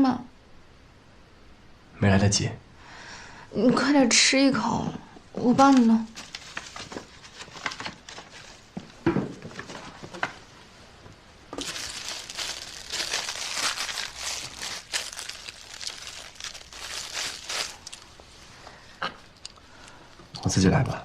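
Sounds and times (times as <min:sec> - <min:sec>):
plastic packaging crinkling: 0:05.6 - 0:08.7, 0:11.5 - 0:18.3.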